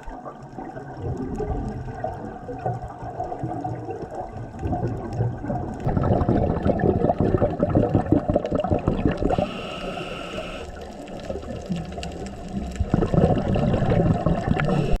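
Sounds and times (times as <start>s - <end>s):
exhaled bubbles underwater: 0.0s - 15.0s
regulator inhale hiss: 9.3s - 11.0s, 14.7s - 15.0s.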